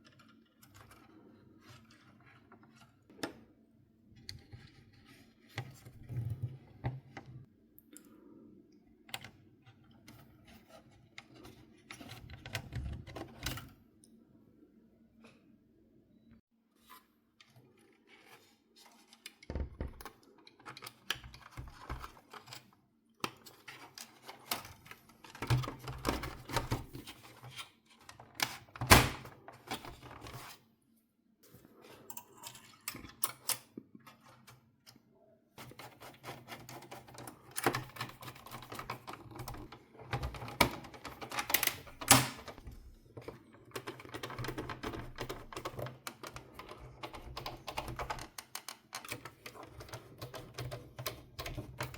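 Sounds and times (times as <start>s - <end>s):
clicking of plastic and metal parts: 35.6s - 51.9s.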